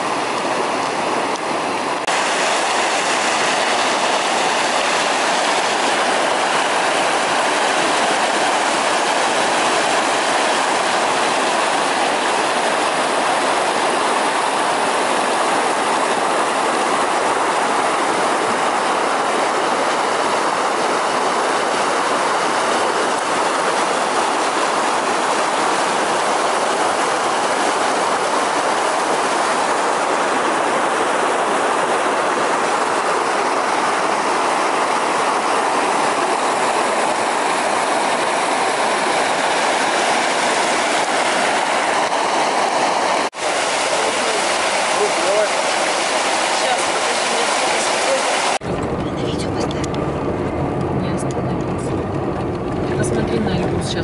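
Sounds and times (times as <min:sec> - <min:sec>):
car tyre and wind noise: 0:48.6 - 0:54.0.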